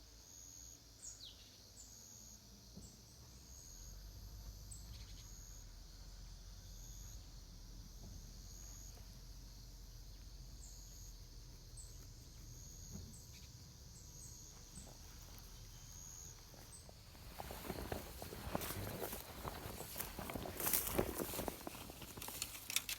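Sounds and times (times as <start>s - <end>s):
insects trilling: 0.1s - 22.9s
low rumble of wind: 13.1s - 22.9s.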